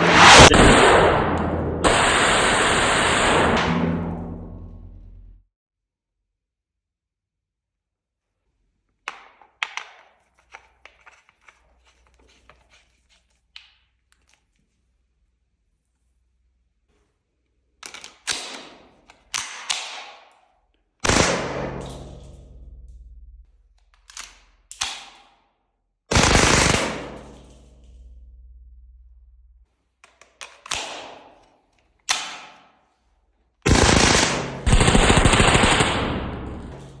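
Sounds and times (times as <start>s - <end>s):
automatic gunfire burst: 21.0s - 22.3s, 26.1s - 27.6s, 33.7s - 37.0s
pistol shots: 21.0s - 22.7s, 26.1s - 27.7s, 33.7s - 37.0s.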